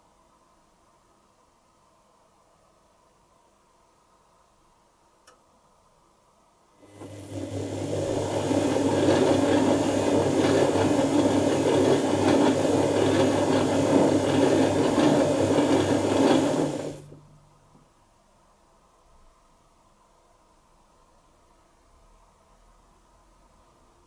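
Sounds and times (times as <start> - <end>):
washing machine motor hum: 6.8 - 17.8
water and clothes churning: 7.0 - 17.1.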